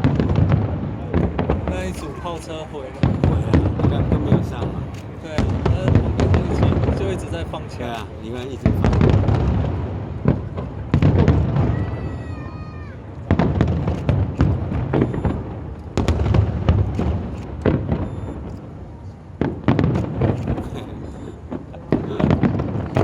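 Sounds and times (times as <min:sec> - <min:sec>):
fireworks booming and crackling: 0:00.0 - 0:23.0
firework whistle: 0:14.4 - 0:15.5.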